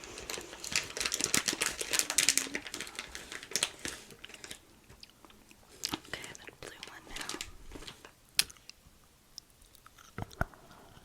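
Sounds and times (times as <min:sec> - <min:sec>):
crisp clicks and taps: 0:04.3 - 0:08.8.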